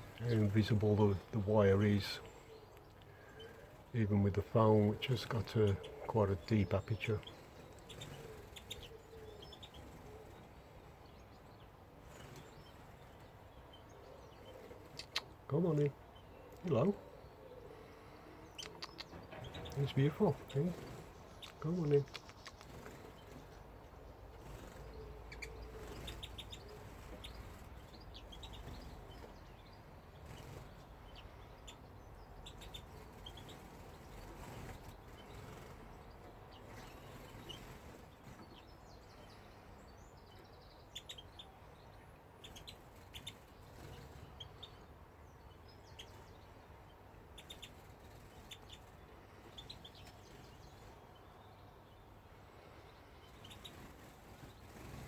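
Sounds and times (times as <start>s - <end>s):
low background hiss: 0.0s - 55.0s
small birds chirping: 0.0s - 55.0s.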